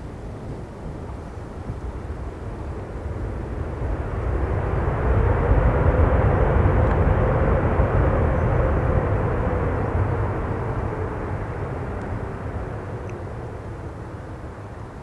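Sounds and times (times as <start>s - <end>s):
faint steady hum: 0.0s - 15.0s
low engine rumble: 0.0s - 15.0s.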